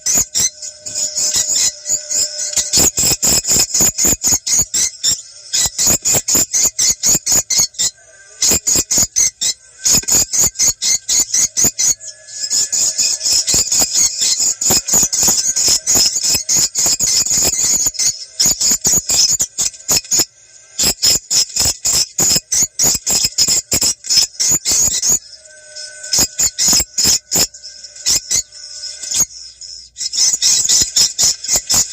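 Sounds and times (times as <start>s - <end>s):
swiftlet calls: 0.0s - 31.9s.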